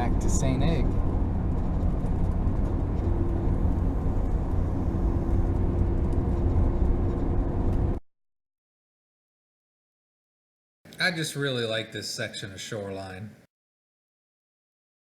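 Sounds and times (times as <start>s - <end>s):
road and engine noise: 0.0s - 8.0s.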